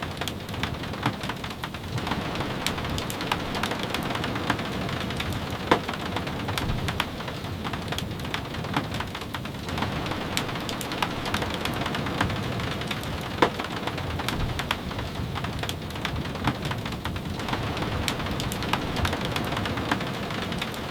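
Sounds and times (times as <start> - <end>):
steady rain: 0.0 - 20.9.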